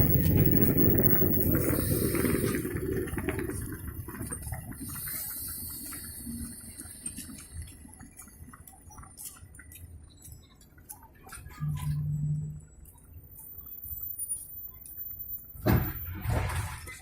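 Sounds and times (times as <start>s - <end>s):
train rumbling: 0.0s - 8.6s, 11.3s - 13.5s.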